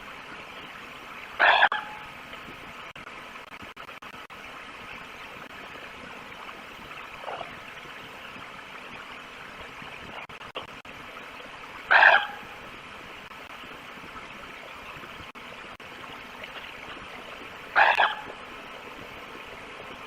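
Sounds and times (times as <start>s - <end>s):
steady rushing hiss: 0.0s - 20.0s
wolf call: 1.4s - 2.1s, 11.9s - 12.5s, 17.8s - 18.3s.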